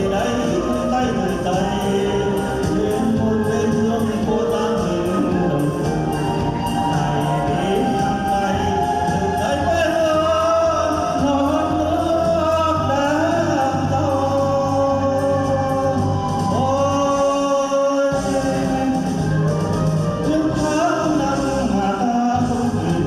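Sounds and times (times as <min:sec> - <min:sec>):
backing music with bass line: 0:00.0 - 0:23.0
person singing with vibrato: 0:00.0 - 0:23.0.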